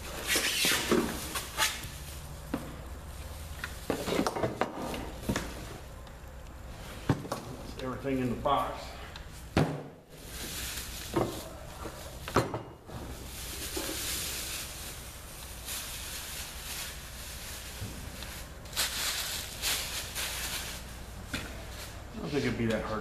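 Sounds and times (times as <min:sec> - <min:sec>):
packaging rustling: 0:10.2 - 0:12.2, 0:13.1 - 0:21.0.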